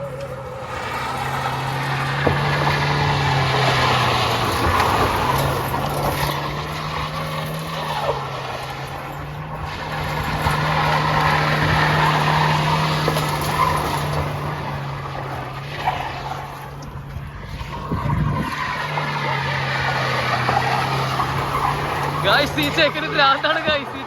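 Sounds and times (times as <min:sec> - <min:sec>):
tyres skidding: 0:00.0 - 0:24.0.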